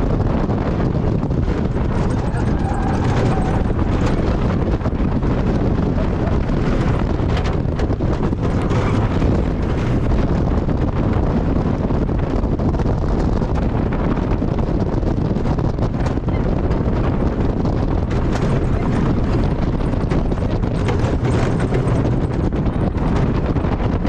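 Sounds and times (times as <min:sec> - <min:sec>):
roller coaster rumbling on track: 0:00.0 - 0:24.0
wind buffeting microphone: 0:00.0 - 0:24.0
faint clacks: 0:15.7 - 0:24.0.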